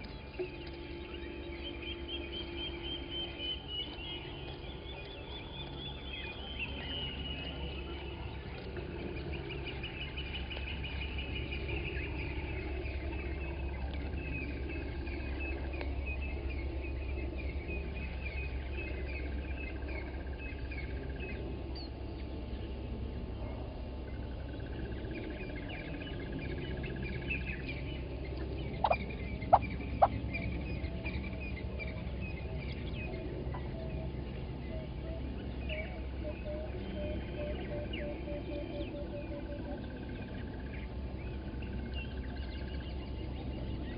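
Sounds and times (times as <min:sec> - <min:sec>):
bird trills: 0:00.0 - 0:21.4, 0:28.7 - 0:34.0
low hum: 0:00.0 - 0:43.9.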